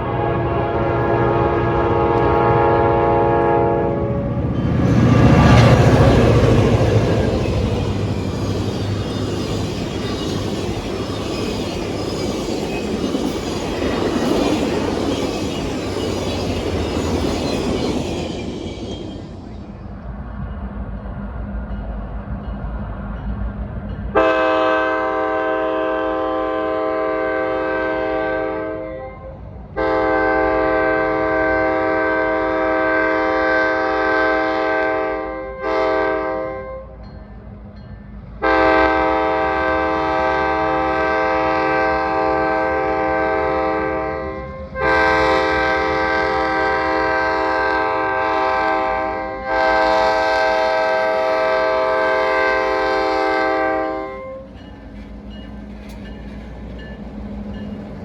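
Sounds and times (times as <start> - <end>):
locomotive air horn blasts: 0.0 - 4.6, 24.1 - 37.0, 38.4 - 54.5
rumble of passing train: 0.0 - 58.0.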